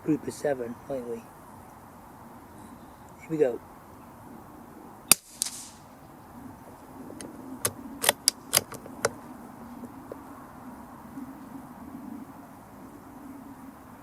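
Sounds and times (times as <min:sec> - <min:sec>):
rifle shot crack: 0:05.1 - 0:06.0
rifle bolt metallic clicks: 0:07.2 - 0:09.2.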